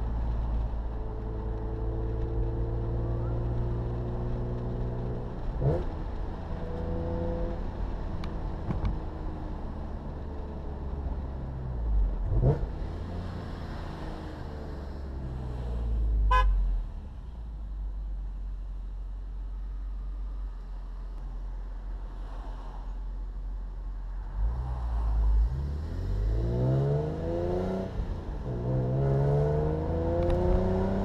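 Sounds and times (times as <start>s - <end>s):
car engine revving: 12.0s - 16.4s, 24.4s - 31.0s.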